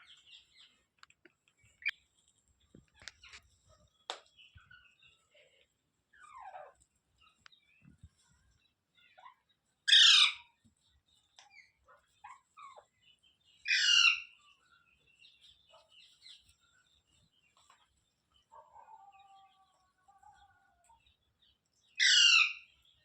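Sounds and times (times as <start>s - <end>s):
parrot screeching: 9.9s - 10.5s, 13.7s - 14.2s, 22.0s - 22.6s.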